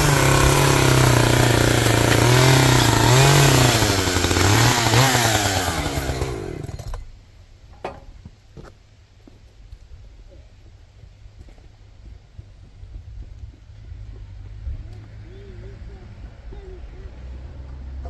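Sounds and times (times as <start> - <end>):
engine running at high revs: 0.0 - 6.6.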